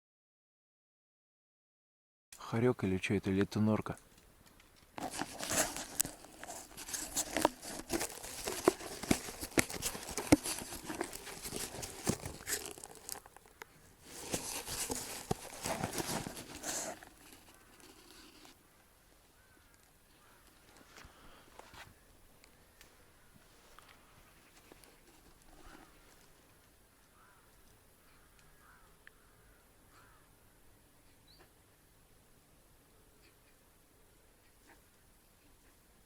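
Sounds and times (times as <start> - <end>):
dry material rustling and crinkling: 5.0 - 18.6.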